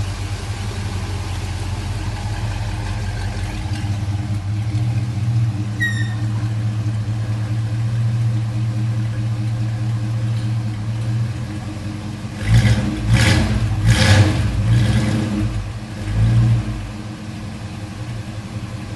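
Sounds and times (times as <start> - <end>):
car engine idling: 0.0 - 18.9
engine revving: 12.3 - 17.0.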